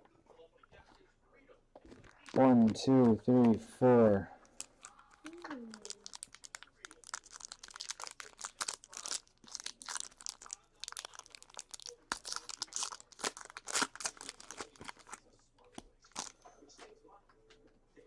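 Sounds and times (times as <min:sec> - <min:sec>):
wrapper tearing and crinkling: 0:04.6 - 0:15.2, 0:16.1 - 0:16.3.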